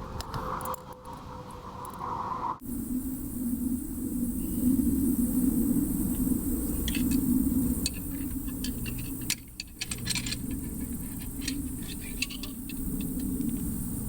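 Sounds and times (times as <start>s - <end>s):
metallic clicks of tools: 6.8s - 13.8s.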